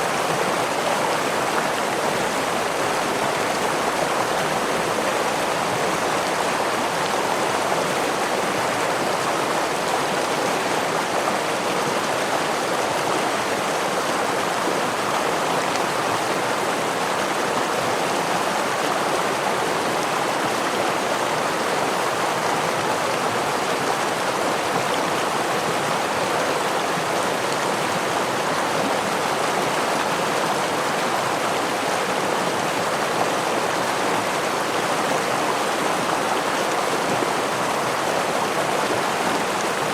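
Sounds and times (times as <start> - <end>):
water flowing over small waterfall: 0.0 - 39.9.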